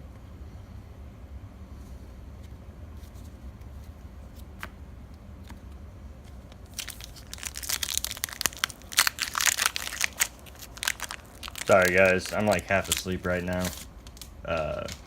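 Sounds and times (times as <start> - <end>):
foil wrapper crinkling and tearing: 6.6 - 15.0.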